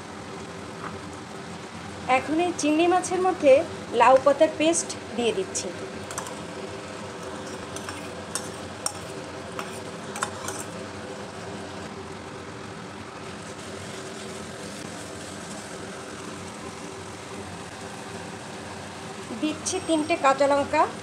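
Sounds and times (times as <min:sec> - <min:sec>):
food cooking hiss: 0:00.0 - 0:21.0
soft stirring with spatula: 0:06.1 - 0:10.8.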